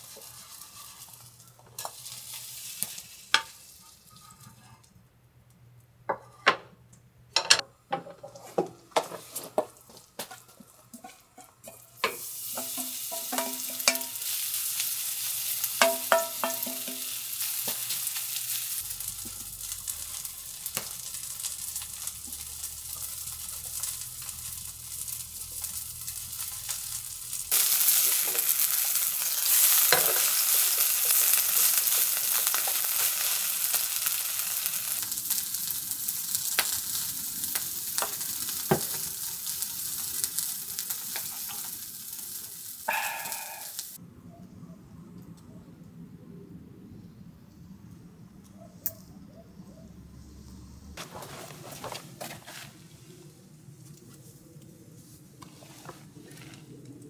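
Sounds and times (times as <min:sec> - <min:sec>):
food sizzling in hot oil: 0:00.0 - 0:04.3, 0:11.0 - 0:44.0
utensils clinking on a pan: 0:07.4 - 0:35.1, 0:37.5 - 0:43.9.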